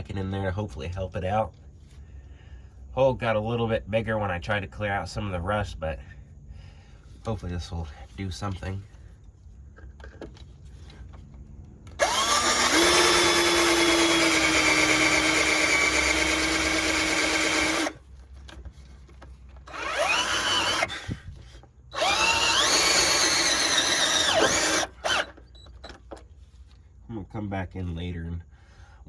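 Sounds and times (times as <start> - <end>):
electric power drill whining: 11.9 - 18.0, 19.6 - 26.1.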